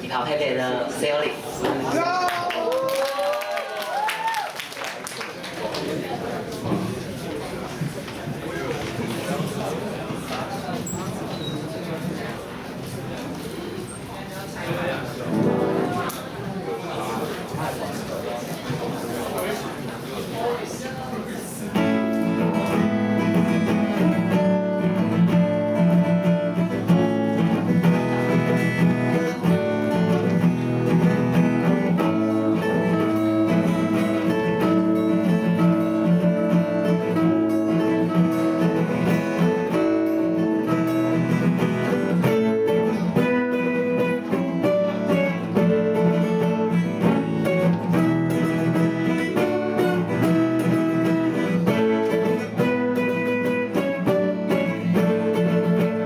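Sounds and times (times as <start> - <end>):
acoustic guitar strumming: 15.2 - 16.1, 21.7 - 56.0.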